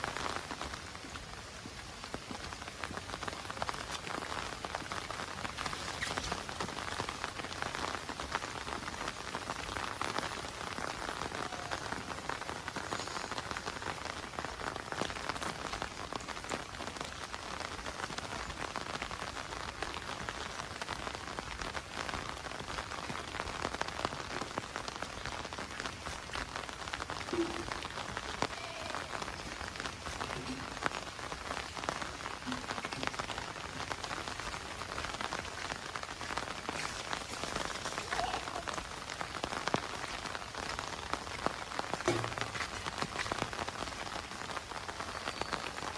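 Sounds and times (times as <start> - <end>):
heavy rain falling: 0.0 - 45.9
raindrops striking close by: 0.0 - 45.9.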